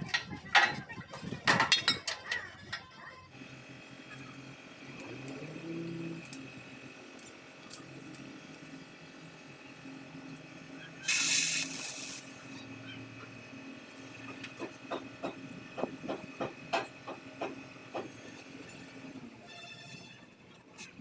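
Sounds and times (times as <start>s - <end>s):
loud hiss burst: 11.1s - 12.5s.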